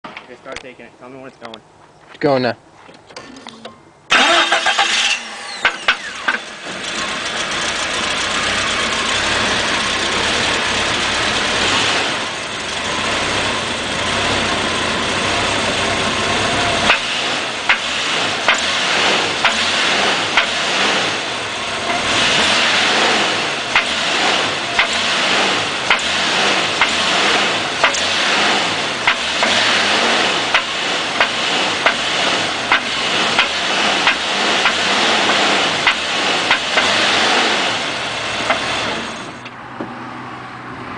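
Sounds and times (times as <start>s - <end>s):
car engine starting and running: 3.1s - 40.9s.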